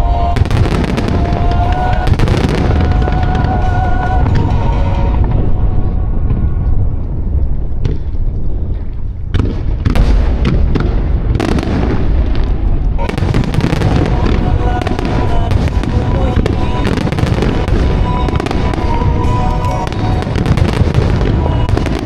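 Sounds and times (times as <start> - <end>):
firework shells booming: 0.4 - 5.4, 7.8 - 22.0
sharp firework cracks: 7.8 - 22.0.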